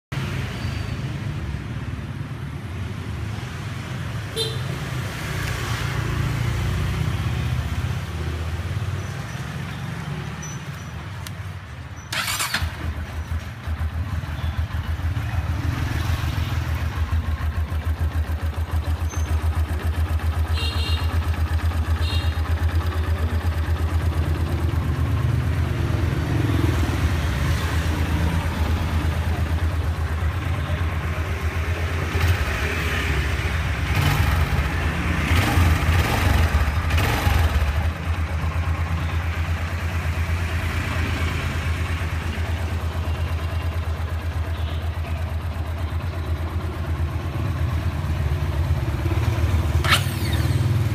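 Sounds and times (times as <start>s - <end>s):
motorcycle engine starting and idling: 4.4s - 50.9s.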